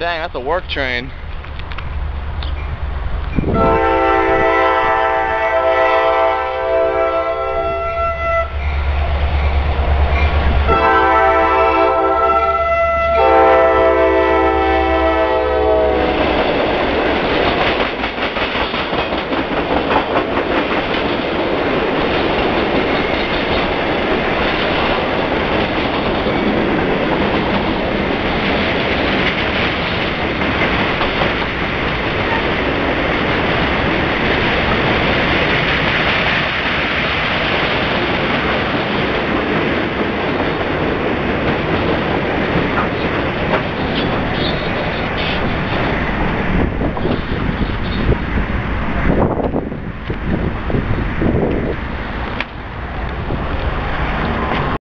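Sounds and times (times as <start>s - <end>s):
train wheels on rails: 0.0s - 54.8s
train air horn blasts: 3.5s - 8.6s, 10.7s - 16.4s
wheels clattering over rail joints: 16.2s - 54.8s.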